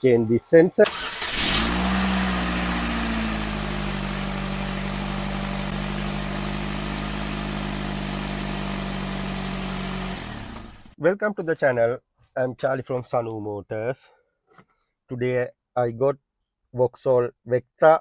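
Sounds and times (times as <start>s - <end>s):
car engine idling: 0.9s - 11.0s.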